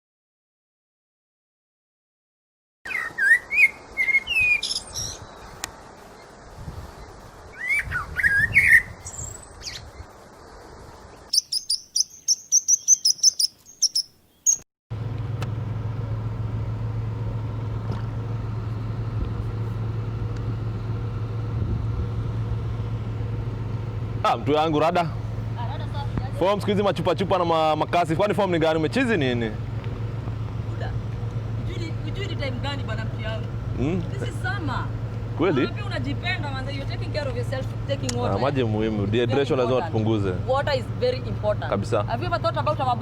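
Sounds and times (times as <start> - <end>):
small birds chirping: 2.9 - 14.7
low mechanical hum: 14.9 - 43.0.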